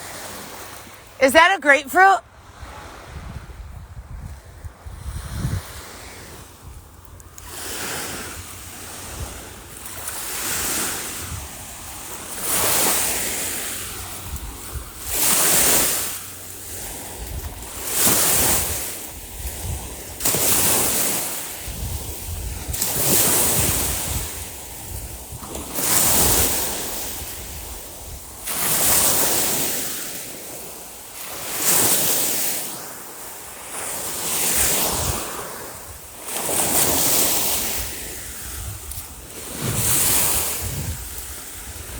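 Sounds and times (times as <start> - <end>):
waves breaking on a beach: 0.0 - 41.9
wind buffeting microphone: 2.5 - 12.6, 21.6 - 28.4, 37.6 - 41.9.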